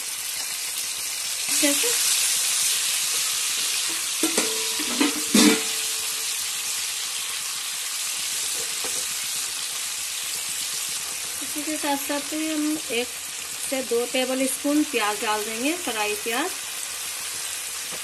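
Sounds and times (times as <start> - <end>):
paste sizzling in hot oil: 0.0 - 18.0
spatula knocking and scraping pan: 3.1 - 6.0.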